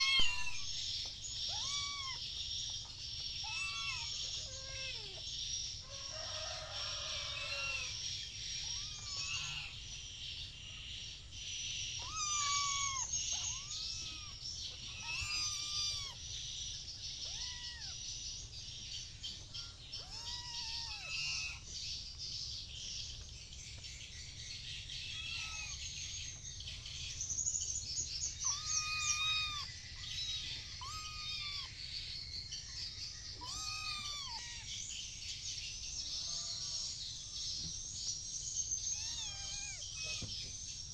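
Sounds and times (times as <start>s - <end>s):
kittens mewing: 0.0s - 2.4s, 3.4s - 5.3s, 6.0s - 9.9s, 12.0s - 16.2s, 17.2s - 18.1s, 19.5s - 21.7s, 25.0s - 25.9s, 28.3s - 31.9s, 32.7s - 34.7s, 36.0s - 37.7s, 38.8s - 40.6s
high chirping: 0.0s - 40.9s.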